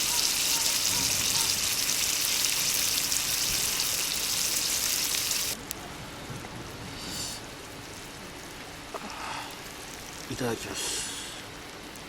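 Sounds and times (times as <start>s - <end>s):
food sizzling over a fire: 0.0s - 12.0s.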